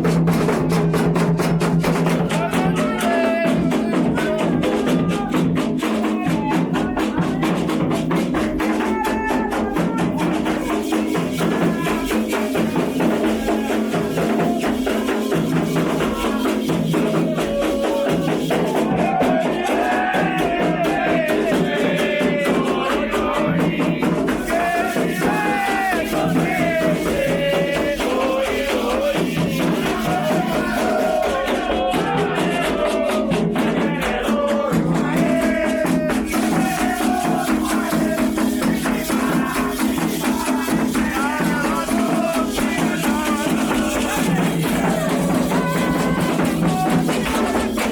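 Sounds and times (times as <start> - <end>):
hand drumming: 0.0 - 47.9
voices singing a chant: 0.0 - 47.9
shaken rattle: 10.2 - 20.4, 35.1 - 47.9.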